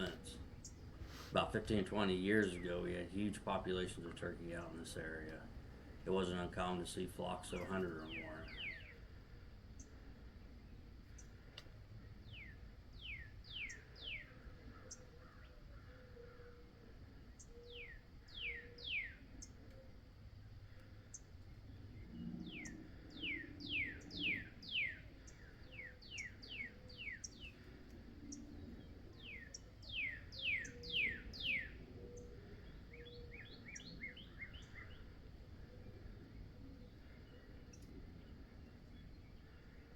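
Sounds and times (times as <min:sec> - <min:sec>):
songbird whistling: 0:08.0 - 0:09.0, 0:12.2 - 0:15.5, 0:17.4 - 0:19.5, 0:22.4 - 0:27.6, 0:28.3 - 0:35.0.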